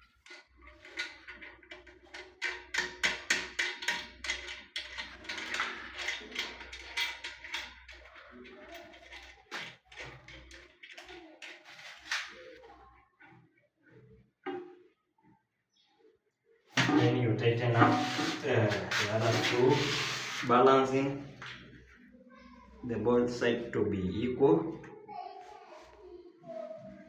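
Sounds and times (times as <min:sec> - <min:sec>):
tool clicking and tapping on screws: 0:00.9 - 0:08.0.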